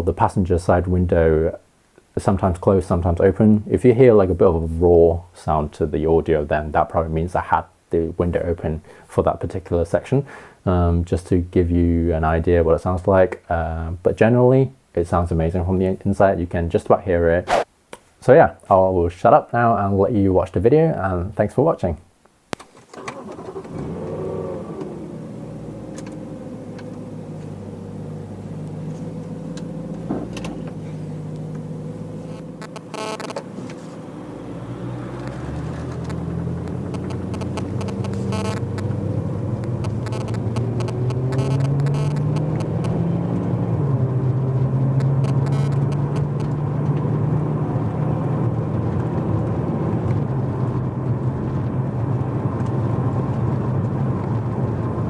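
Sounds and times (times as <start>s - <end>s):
electronic buzzes on microphone: 17.5s - 17.7s, 32.2s - 33.4s, 36.9s - 38.9s, 39.6s - 43.0s, 45.0s - 46.5s
car engine from inside cabin: 23.6s - 55.0s.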